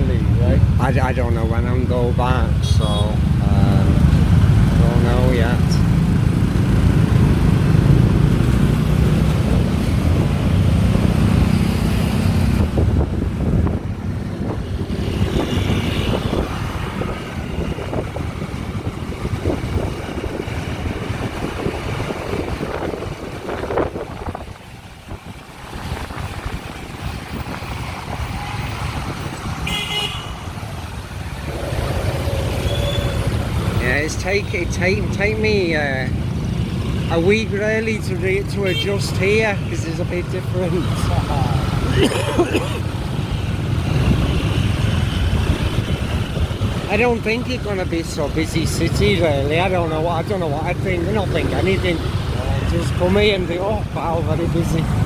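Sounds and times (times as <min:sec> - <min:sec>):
wind on microphone: 0:06.4 - 0:29.7, 0:43.3 - 0:47.2
vehicle horns tooting: 0:28.1 - 0:30.6, 0:38.6 - 0:39.1.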